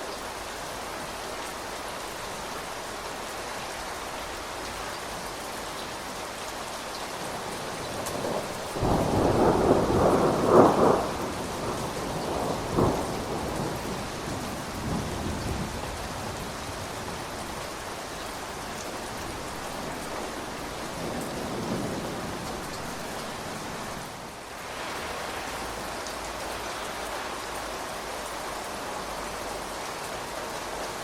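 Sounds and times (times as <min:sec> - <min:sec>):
rain falling: 0:00.0 - 0:31.0
thunder rumbling: 0:07.4 - 0:17.6, 0:18.9 - 0:25.8
sharp thunder crack: 0:08.3 - 0:13.8.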